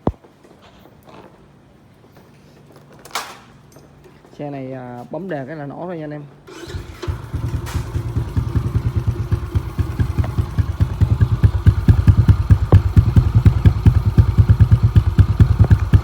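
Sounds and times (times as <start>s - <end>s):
motorcycle engine idling: 6.5s - 16.0s.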